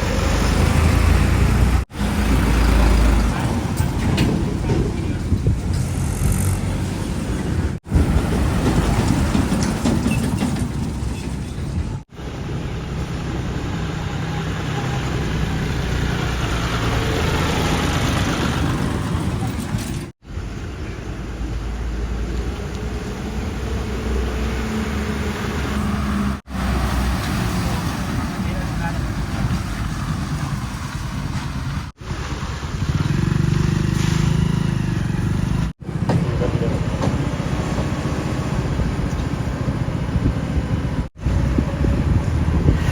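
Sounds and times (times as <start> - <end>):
construction machinery diesel engine: 0.0 - 42.7
wind noise on microphone: 3.9 - 10.0, 35.9 - 42.9.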